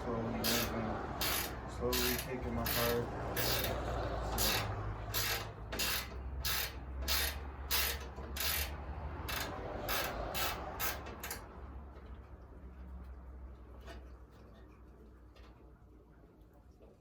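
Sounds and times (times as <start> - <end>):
ratchet wrench clicking: 0.4 - 11.5.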